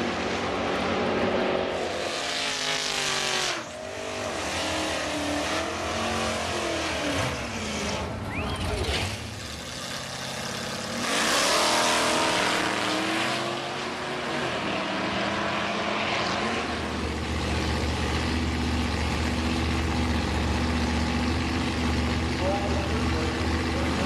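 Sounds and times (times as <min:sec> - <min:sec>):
racing car engine at full throttle: 0:00.0 - 0:24.0
deep steady engine rumble: 0:05.6 - 0:11.0, 0:16.7 - 0:24.0.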